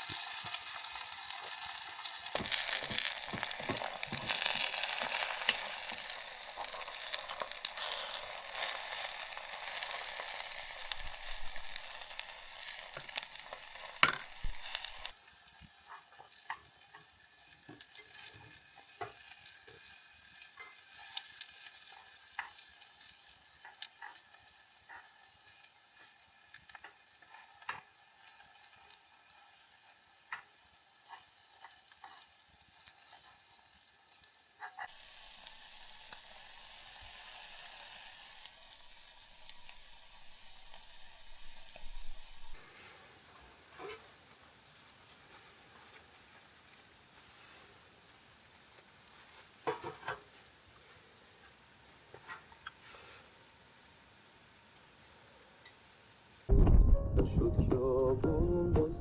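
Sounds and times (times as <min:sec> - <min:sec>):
food sizzling in a pan: 0:00.0 - 0:56.5
sharp pops and clicks: 0:02.4 - 0:07.8.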